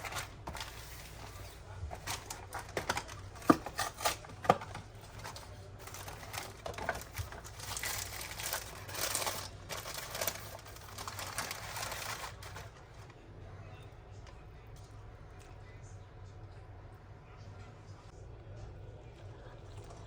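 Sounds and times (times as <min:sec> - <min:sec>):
crinkling: 0:00.0 - 0:13.2.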